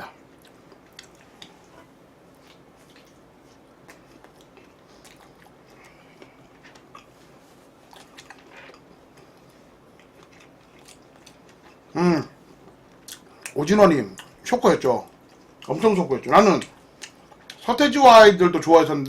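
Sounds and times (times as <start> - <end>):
person chewing crisp food: 0.2 - 1.7, 2.3 - 11.9, 12.5 - 14.4.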